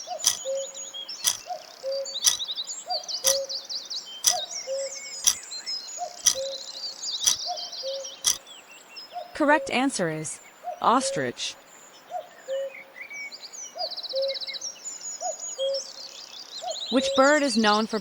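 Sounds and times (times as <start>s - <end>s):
birds chirping and trilling: 0.0s - 18.0s
sharp timer ticks: 0.2s - 0.5s, 1.2s - 1.4s.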